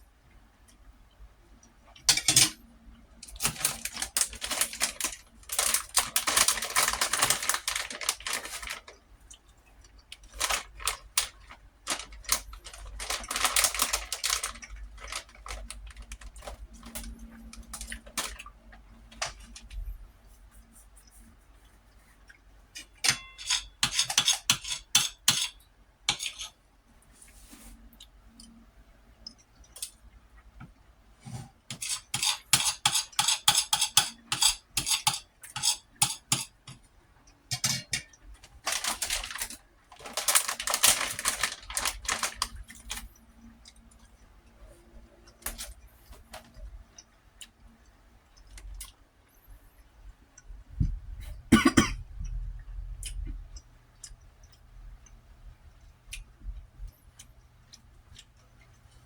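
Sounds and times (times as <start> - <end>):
cough or burp: 51.5 - 52.1.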